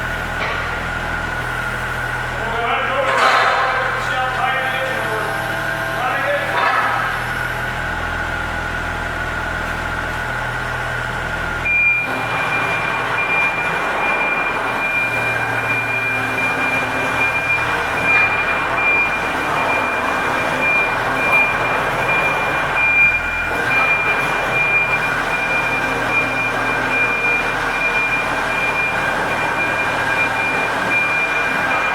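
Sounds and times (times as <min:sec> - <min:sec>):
excavator diesel engine running: 0:00.0 - 0:31.9.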